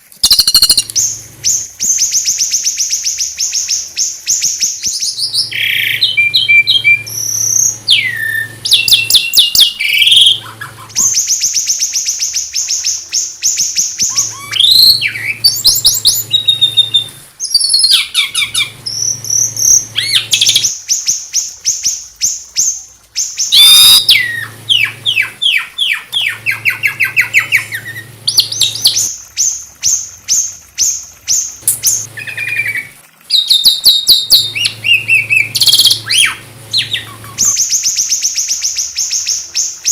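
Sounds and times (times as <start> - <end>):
songbird singing trills: 0.0 - 39.9
steady low hum: 5.0 - 11.7, 18.3 - 20.7, 23.6 - 29.3, 34.2 - 38.0.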